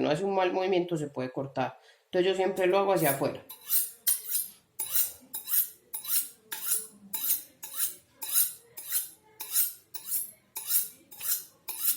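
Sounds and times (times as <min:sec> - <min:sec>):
knife scraping on honing steel: 0:03.0 - 0:11.9.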